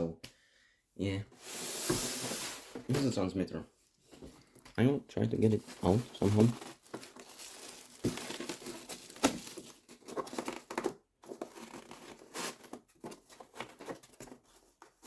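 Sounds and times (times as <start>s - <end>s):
packaging crinkling: 5.6s - 14.8s.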